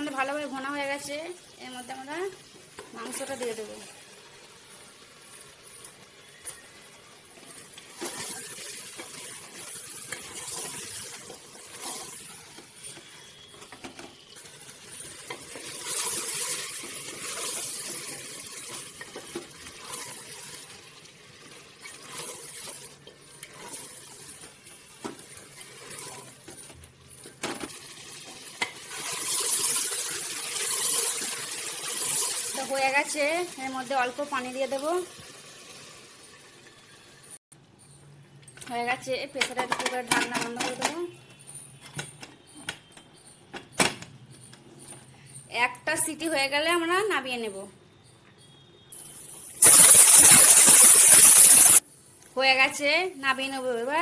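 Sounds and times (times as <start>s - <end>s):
chicken sizzling in a pot: 0.0s - 37.4s, 48.9s - 51.9s
wooden spatula scraping pot: 7.3s - 27.4s.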